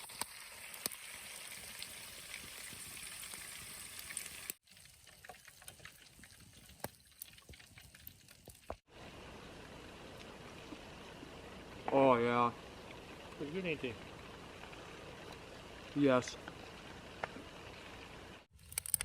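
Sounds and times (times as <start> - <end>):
fish sizzling in a pan: 0.0 - 8.8.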